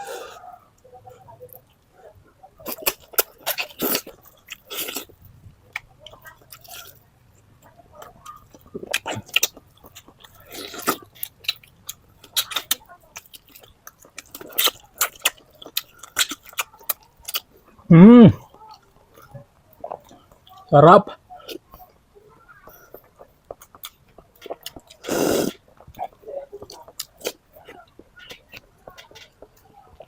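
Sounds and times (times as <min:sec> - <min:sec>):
person chewing food: 0:02.6 - 0:07.0, 0:07.6 - 0:17.6, 0:22.6 - 0:30.0.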